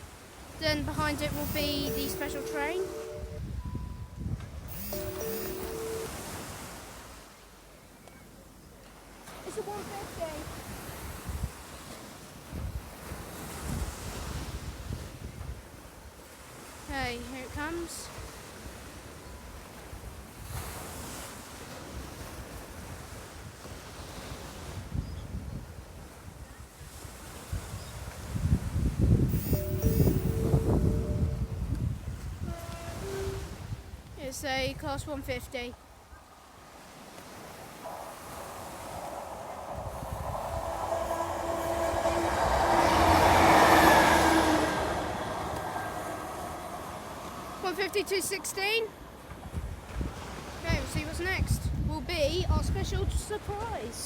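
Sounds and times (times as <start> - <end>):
wind buffeting microphone: 0.0 - 7.2, 8.6 - 54.0
train wheels rushing: 0.6 - 3.2, 4.7 - 6.2, 29.3 - 34.0, 36.9 - 51.4
diesel train engine hum: 0.6 - 6.4, 29.3 - 34.0, 37.4 - 49.5
train horn tones: 0.9 - 7.0, 29.3 - 34.2, 37.3 - 48.4
sea waves against a wall: 36.3 - 51.7.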